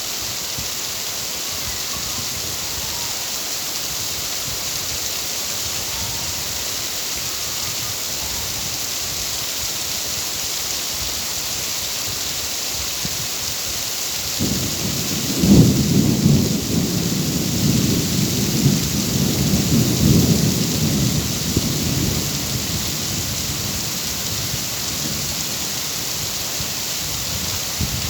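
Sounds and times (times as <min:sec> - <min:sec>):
steady rain: 0:00.0 - 0:28.0
thunder rumbling: 0:14.4 - 0:28.0.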